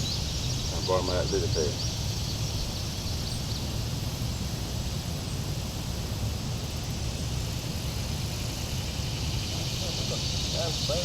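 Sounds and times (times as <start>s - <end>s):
high hiss: 8.1s - 11.0s.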